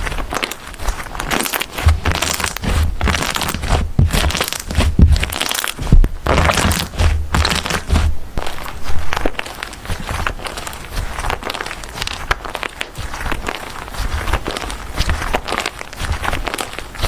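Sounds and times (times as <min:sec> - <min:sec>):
slime crackling and crunching: 0:00.0 - 0:17.0
soft low thumps: 0:01.8 - 0:11.4.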